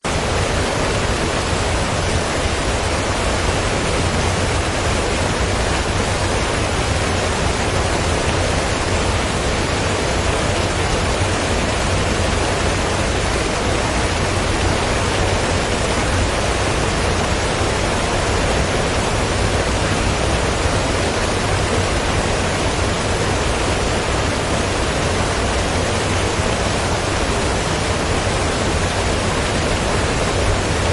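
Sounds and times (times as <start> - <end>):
water rushing through sluice: 0.0 - 30.9.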